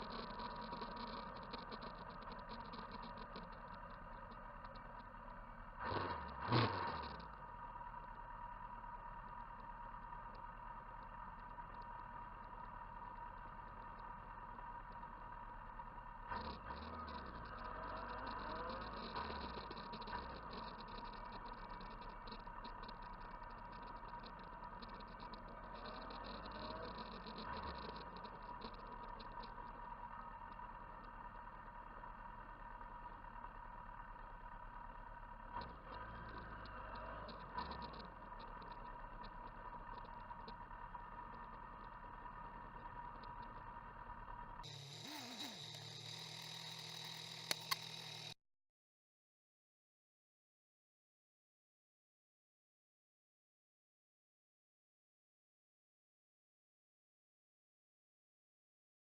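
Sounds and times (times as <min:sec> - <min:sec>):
engine noise rising and falling: 0:00.0 - 0:48.4
faint motorcycle engine running: 0:00.0 - 0:48.4
click: 0:44.6 - 0:48.4.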